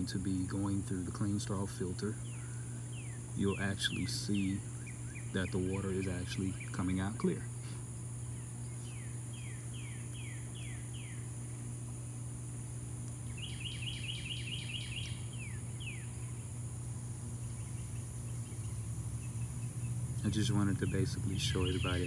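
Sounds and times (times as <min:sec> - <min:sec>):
high insect drone: 0:00.0 - 0:22.0
low hum: 0:00.0 - 0:22.0
bird whistling and chirping: 0:08.3 - 0:11.3, 0:13.3 - 0:16.4, 0:20.7 - 0:22.0.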